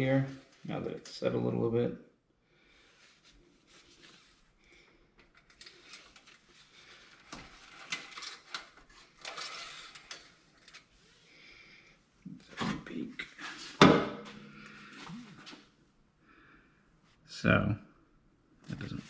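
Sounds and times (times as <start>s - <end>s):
rustling: 2.8s - 11.4s.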